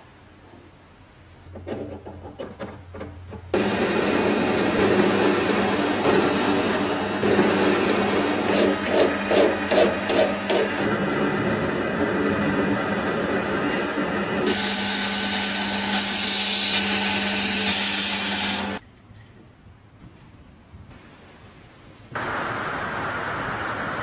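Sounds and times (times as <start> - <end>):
electric power tool humming: 3.6 - 18.8.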